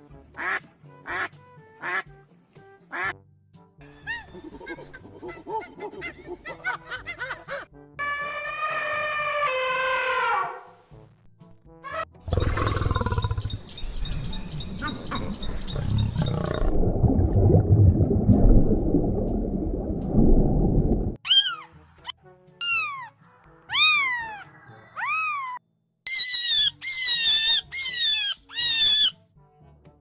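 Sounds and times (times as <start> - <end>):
lion growling: 12.3 - 13.7, 15.2 - 16.8
kittens meowing: 23.7 - 25.6.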